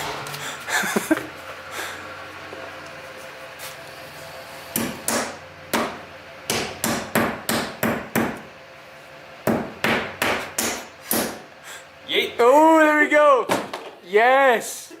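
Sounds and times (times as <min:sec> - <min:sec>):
hammer driving a nail: 0:04.7 - 0:08.5, 0:09.4 - 0:11.4.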